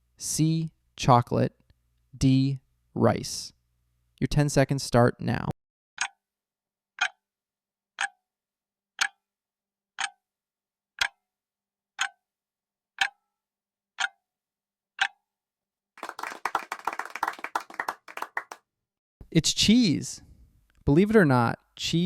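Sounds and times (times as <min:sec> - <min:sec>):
clock ticking: 0:06.0 - 0:06.2, 0:07.0 - 0:07.2, 0:08.0 - 0:08.2, 0:09.0 - 0:09.3, 0:10.0 - 0:10.2, 0:11.0 - 0:11.2, 0:12.0 - 0:12.2, 0:13.0 - 0:13.2, 0:14.0 - 0:14.2, 0:15.0 - 0:15.2.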